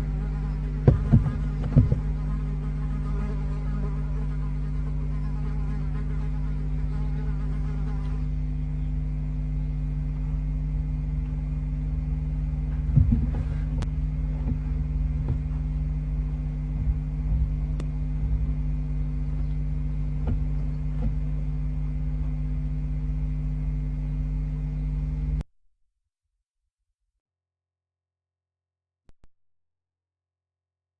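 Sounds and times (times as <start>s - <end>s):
electrical mains hum: 0.0s - 25.4s
knocks and scratches from movement: 0.8s - 2.3s, 12.7s - 21.4s.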